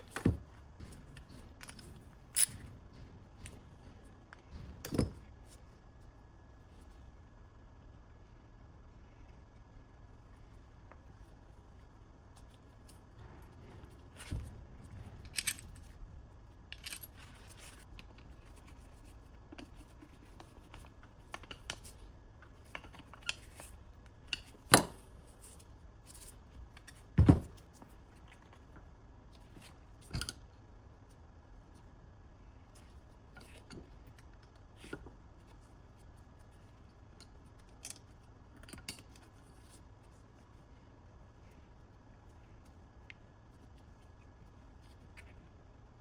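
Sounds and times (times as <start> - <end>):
metal tools clinking and knocking: 0.0 - 2.7.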